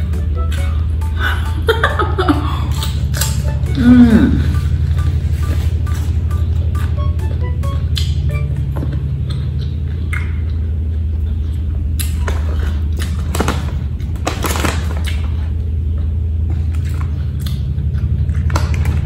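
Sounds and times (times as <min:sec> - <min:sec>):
steady low hum: 0:00.0 - 0:19.0
crunchy chewing: 0:09.1 - 0:19.0.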